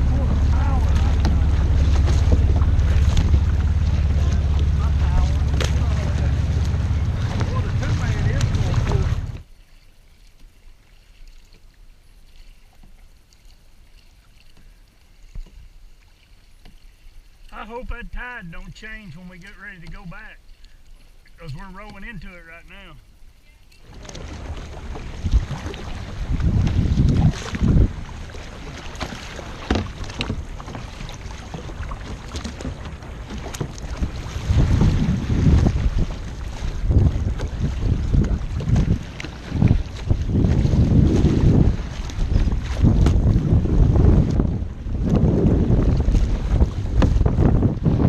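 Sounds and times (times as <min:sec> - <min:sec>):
low wind rumble: 0:00.0 - 0:09.4, 0:24.2 - 0:48.0
paddle splashes and drips: 0:00.0 - 0:48.0
water washing around kayak: 0:00.0 - 0:48.0.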